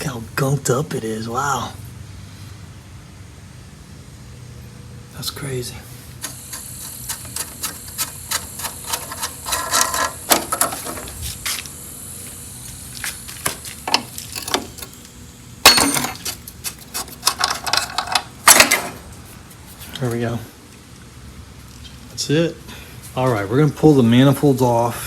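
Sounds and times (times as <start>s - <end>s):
metal rasp: 6.2s - 11.1s, 16.2s - 18.0s
metal tools clinking on engine parts: 6.2s - 11.1s, 13.4s - 15.0s, 15.6s - 19.1s.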